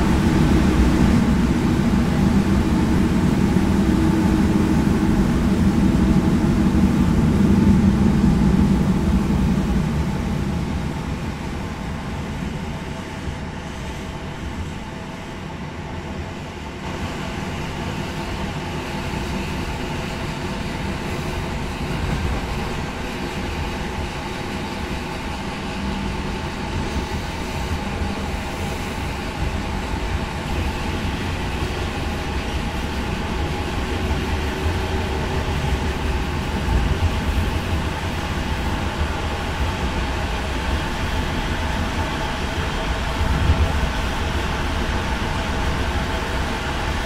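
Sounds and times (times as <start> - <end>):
train rumbling inside carriage: 0.0 - 47.0.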